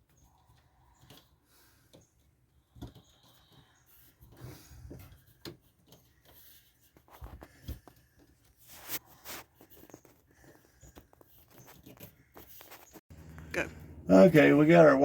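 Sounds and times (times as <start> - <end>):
wire clicking and scraping in plastic: 0.0 - 13.4.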